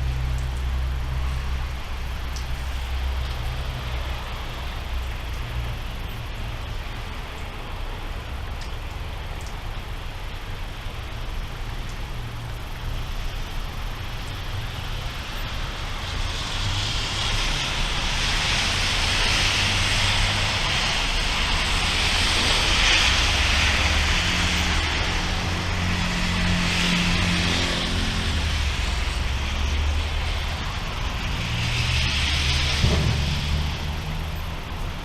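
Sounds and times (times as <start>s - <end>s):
rain hiss: 0.0s - 35.0s
thunder rumble: 12.2s - 35.0s.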